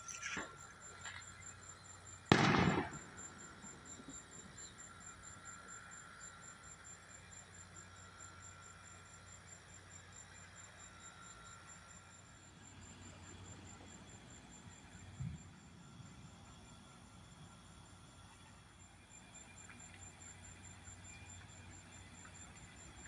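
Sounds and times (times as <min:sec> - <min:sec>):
sharp crack of close thunder: 0:02.3 - 0:03.2.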